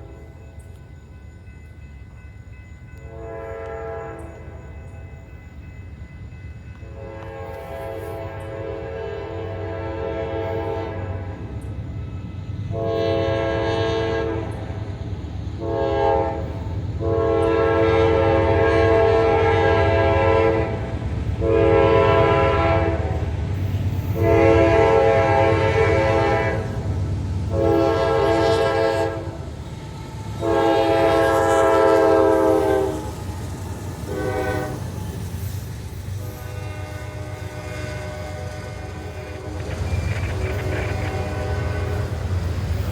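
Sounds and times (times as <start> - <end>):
train rumbling past: 0.0 - 42.9
locomotive horn blasts: 3.0 - 4.7, 6.8 - 11.4, 12.7 - 14.8, 15.6 - 23.3, 24.1 - 29.4, 30.3 - 35.0, 36.2 - 42.4.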